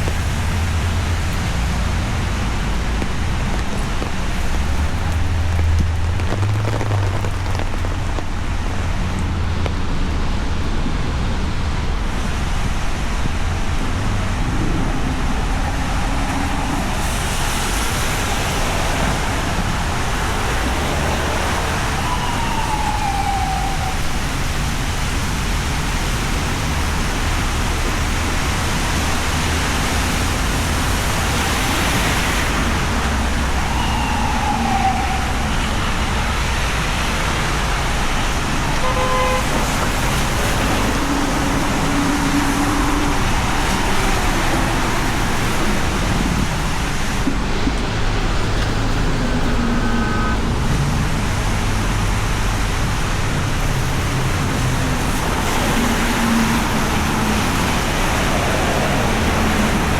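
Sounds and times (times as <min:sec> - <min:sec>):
tyres hissing on wet pavement: 0:00.0 - 0:11.4, 0:12.1 - 0:59.9
steady rain: 0:00.0 - 0:59.9
siren wailing: 0:20.3 - 0:24.7, 0:32.5 - 0:36.6, 0:48.7 - 0:50.8.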